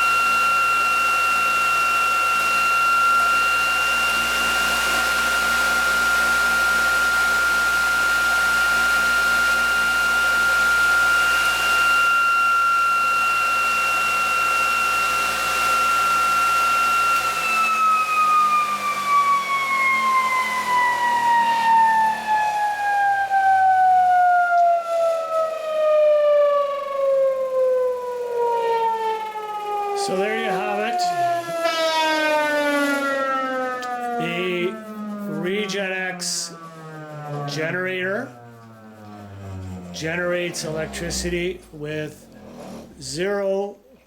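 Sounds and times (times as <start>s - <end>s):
high-pitched rotor whine: 0.0s - 43.2s
low hum: 33.2s - 43.3s.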